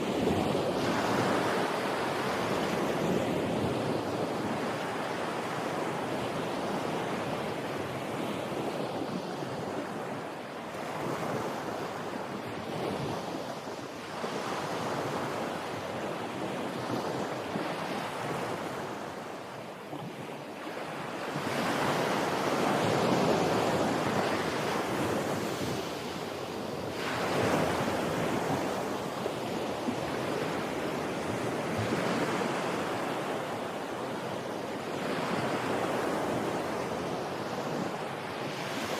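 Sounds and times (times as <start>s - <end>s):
wind: 0.0s - 38.9s
ocean waves breaking: 16.7s - 38.9s.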